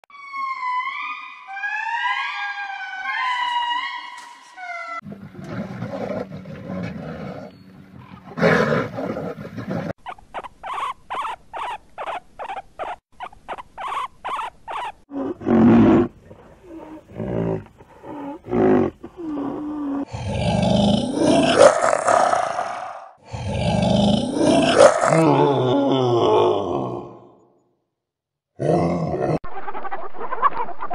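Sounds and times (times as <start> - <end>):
bears growling and roaring: 4.9 - 10.0, 15.0 - 27.4, 28.6 - 29.4
rapid pulsing animal calls: 7.9 - 15.1
animal grunts: 15.1 - 27.3.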